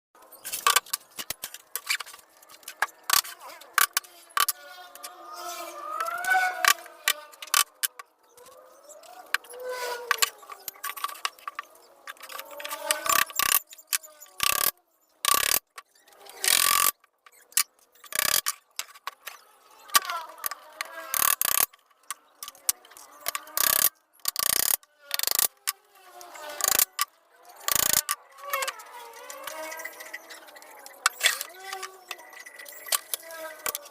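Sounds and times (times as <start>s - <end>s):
tool clicking and rasping: 0.5s - 33.9s
sharp clicks: 10.1s - 33.9s.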